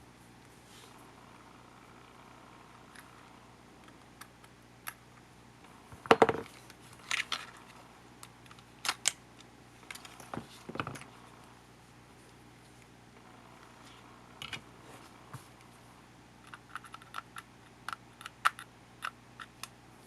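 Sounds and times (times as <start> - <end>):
small parts clicking and clattering: 6.0 - 11.1, 16.5 - 19.7.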